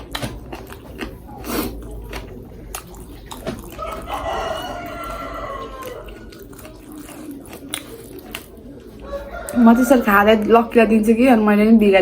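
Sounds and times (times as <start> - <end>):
rooster crowing: 3.7 - 6.4, 9.0 - 10.4.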